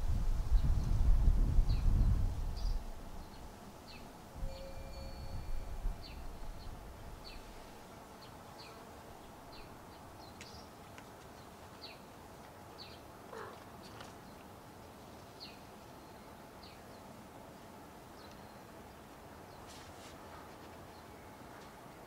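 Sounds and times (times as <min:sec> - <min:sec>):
low background noise: 0:00.0 - 0:22.0.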